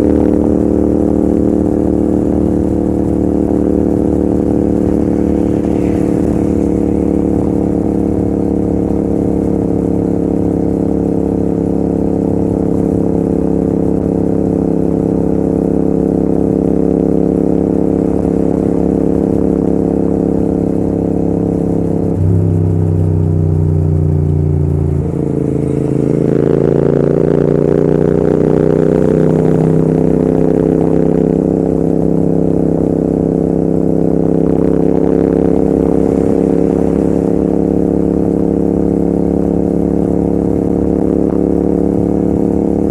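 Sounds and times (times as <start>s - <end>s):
motorcycle engine running hard: 0.0s - 42.9s.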